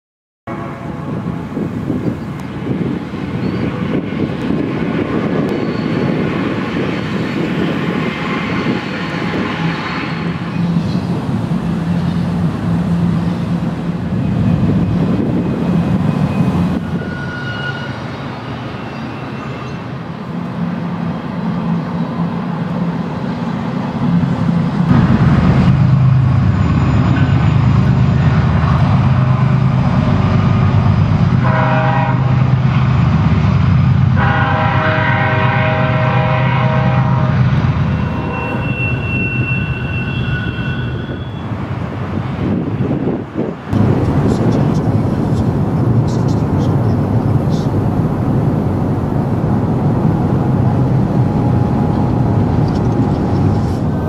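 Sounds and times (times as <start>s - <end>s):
train horn blasts: 0.5s - 1.2s, 16.3s - 18.1s, 31.4s - 32.6s, 34.1s - 41.5s
diesel freight train passing: 0.5s - 54.0s.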